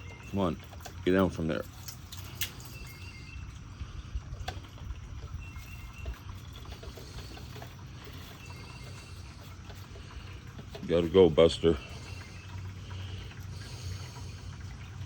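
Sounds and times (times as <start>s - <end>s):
faint high chirps: 2.6s - 3.6s.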